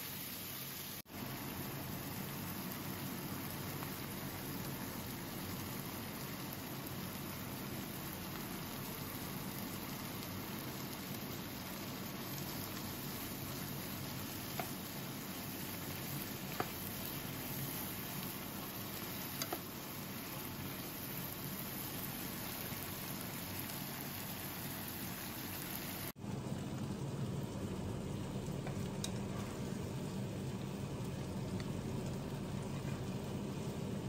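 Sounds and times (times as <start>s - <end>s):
mushrooms sizzling in a pan: 0.0s - 34.0s.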